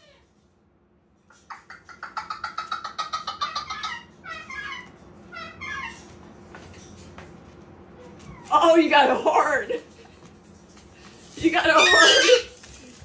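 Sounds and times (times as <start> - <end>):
parrot calling: 1.4 - 6.2, 11.5 - 12.6.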